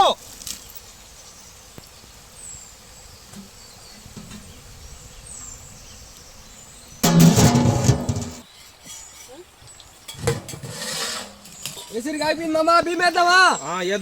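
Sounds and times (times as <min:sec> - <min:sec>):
loud sound: 0:07.0 - 0:08.4.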